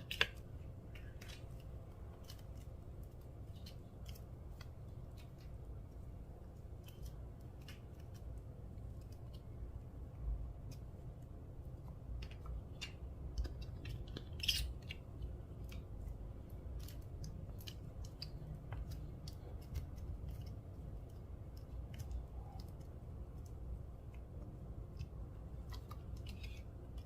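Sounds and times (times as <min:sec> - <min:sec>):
slime squishing with sticky pops: 0:10.6 - 0:27.0.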